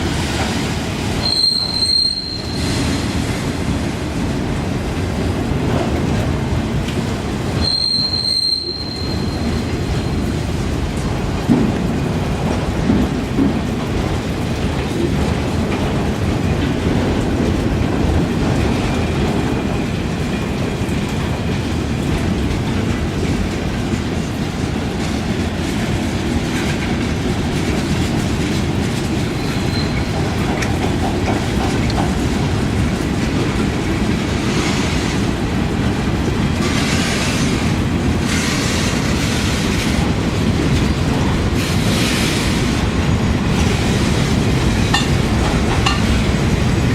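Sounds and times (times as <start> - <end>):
train wheels rumbling: 0.0 - 46.9
faint high squeal: 1.2 - 2.7, 7.6 - 9.5.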